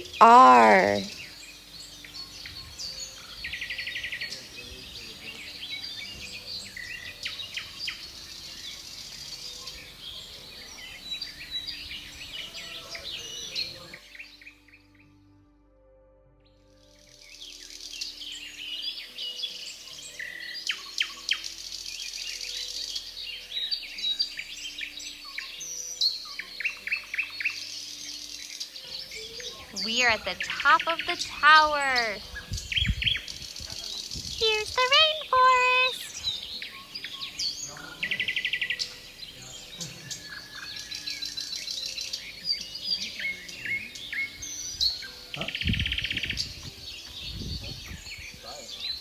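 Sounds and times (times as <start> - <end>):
background hiss: 0.0 - 14.0, 19.2 - 49.0
birds chirping and whistling: 0.0 - 14.0, 17.7 - 49.0
bird trill: 20.2 - 49.0.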